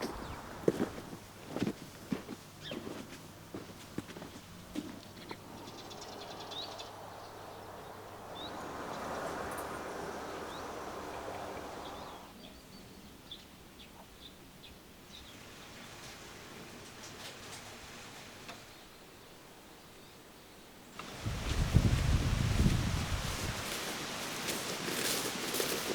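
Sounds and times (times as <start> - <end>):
small birds chirping: 0.0 - 15.4
broad rushing noise: 5.4 - 12.3.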